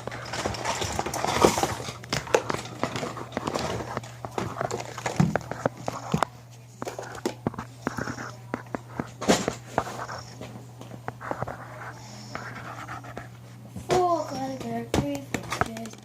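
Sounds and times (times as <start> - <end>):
plastic toys clattering: 0.0 - 8.2, 13.9 - 16.0
steady low hum: 0.0 - 16.0.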